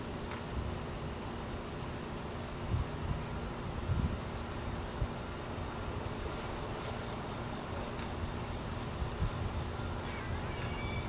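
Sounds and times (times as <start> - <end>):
low outdoor rumble: 0.0 - 11.0
high thin bird calls: 9.7 - 11.0.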